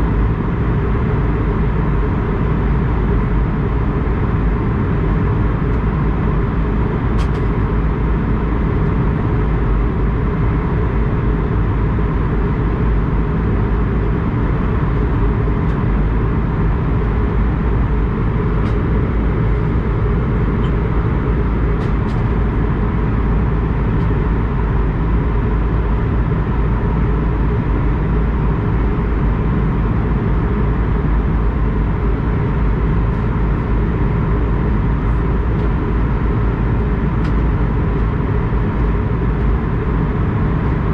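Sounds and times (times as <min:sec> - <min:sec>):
jet cabin low rumble: 0:00.0 - 0:40.9.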